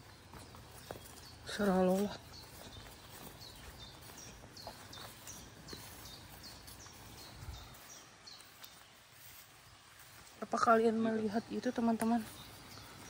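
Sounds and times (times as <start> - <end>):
footsteps through long grass: 0.0 - 13.0
songbird high chirps: 0.0 - 13.0.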